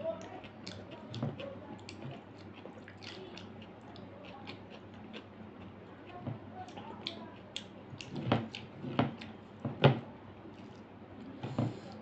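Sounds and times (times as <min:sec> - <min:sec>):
wet chewing clicks: 0:00.2 - 0:09.4.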